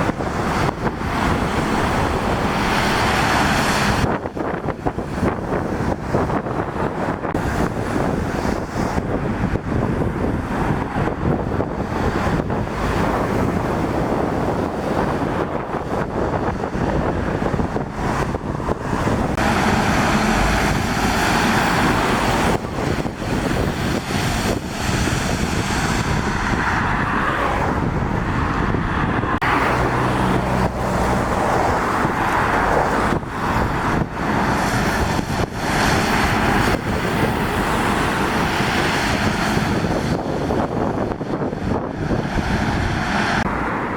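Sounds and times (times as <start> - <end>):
vehicle engine: 0.0 - 43.9
wind gusting on microphone: 0.0 - 43.9
tyres hissing on wet road: 0.3 - 4.1, 19.4 - 27.7, 29.4 - 40.1.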